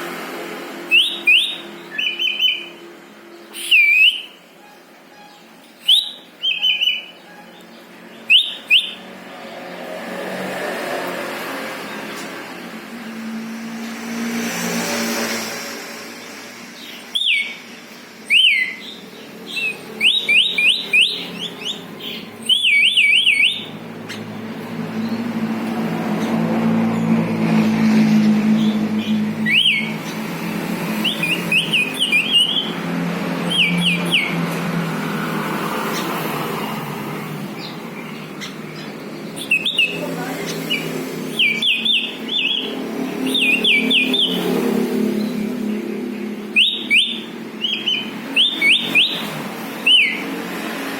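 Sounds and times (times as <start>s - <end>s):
bird whistling descending notes: 0.8s - 2.8s, 3.5s - 4.4s, 5.2s - 7.1s, 8.2s - 9.1s, 17.1s - 17.6s, 18.2s - 18.9s, 19.6s - 21.8s, 22.4s - 23.8s, 28.7s - 30.0s, 31.0s - 32.8s, 33.4s - 34.4s, 39.3s - 40.0s, 40.7s - 44.6s, 46.5s - 50.3s.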